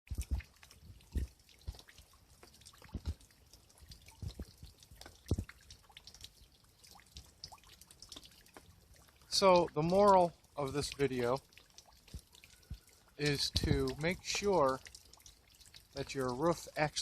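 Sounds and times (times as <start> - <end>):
rainwater dripping: 0.1 - 17.0.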